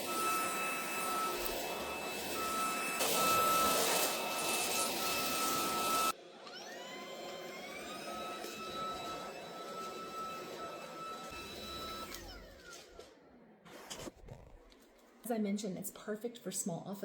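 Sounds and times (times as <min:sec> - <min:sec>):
stick vacuum motor whining: 0:00.0 - 0:15.0.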